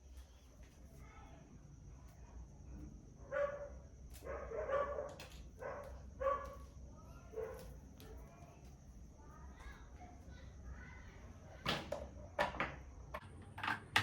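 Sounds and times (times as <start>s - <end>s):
dog barking: 3.3s - 6.6s, 7.3s - 7.7s.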